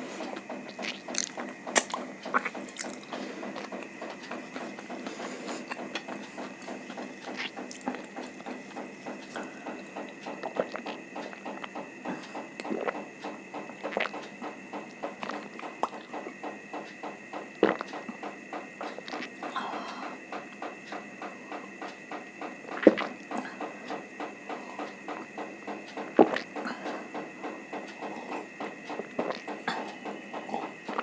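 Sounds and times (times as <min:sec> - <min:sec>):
mouth chewing with wet clicks: 0:00.7 - 0:03.9, 0:07.2 - 0:16.3, 0:17.0 - 0:19.3, 0:20.3 - 0:29.9.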